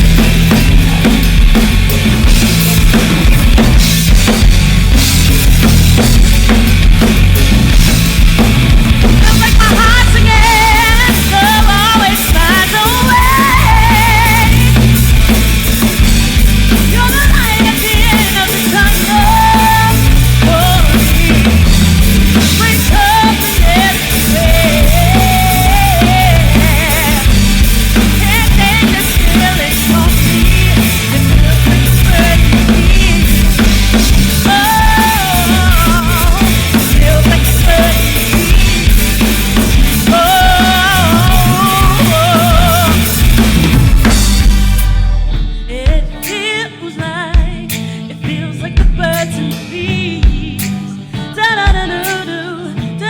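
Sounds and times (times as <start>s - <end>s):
drum kit: 0.0s - 53.0s
lead guitar melody: 0.0s - 53.0s
rock band playing live: 0.0s - 53.0s.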